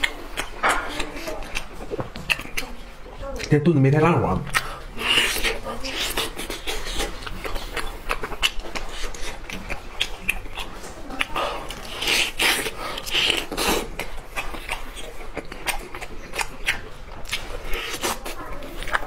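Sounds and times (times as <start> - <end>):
wet mouth clicks and smacks: 0.0 - 2.8, 4.4 - 19.0
biting and tearing meat: 0.0 - 19.0.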